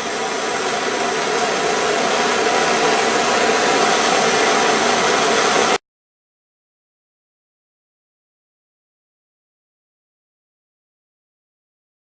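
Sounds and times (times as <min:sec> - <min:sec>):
gas torch burning: 0:00.0 - 0:05.8.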